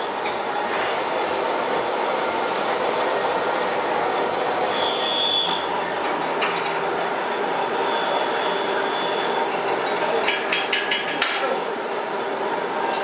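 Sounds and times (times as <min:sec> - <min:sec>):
high-pitched machine whine: 0:00.0 - 0:10.0
log-rounding machine running: 0:00.0 - 0:13.0.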